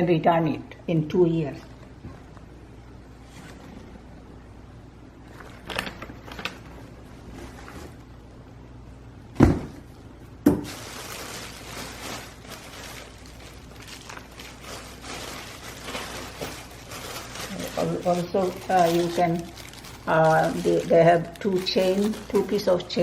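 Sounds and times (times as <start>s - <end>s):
packaging rustling: 5.2s - 8.2s, 10.6s - 23.0s.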